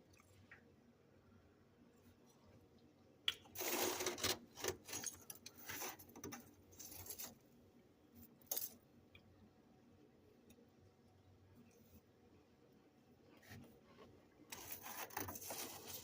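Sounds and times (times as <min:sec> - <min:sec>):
spoon crunching through frost: 0:03.4 - 0:06.1.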